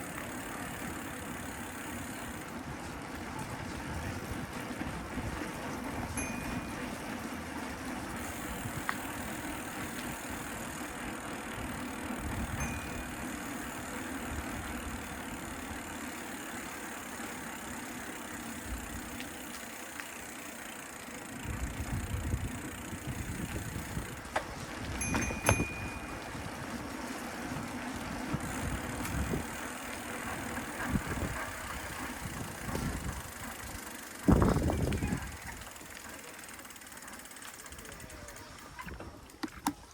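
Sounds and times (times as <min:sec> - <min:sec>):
traffic and road hiss: 0:00.0 - 0:39.9
wind buffeting microphone: 0:02.3 - 0:10.6, 0:11.7 - 0:13.0, 0:21.4 - 0:35.8.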